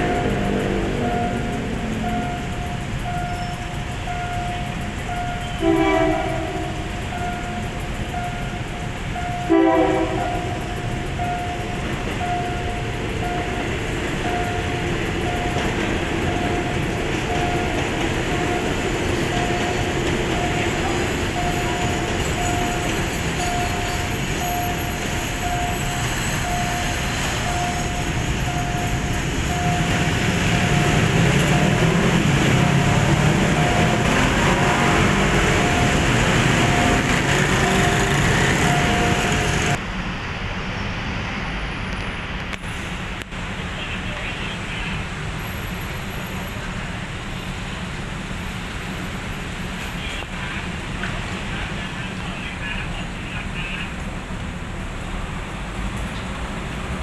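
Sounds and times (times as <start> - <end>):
level crossing signal beeping: 0.0 - 39.8
city traffic noise: 0.0 - 57.0
railcar engine and wheels: 0.0 - 57.0.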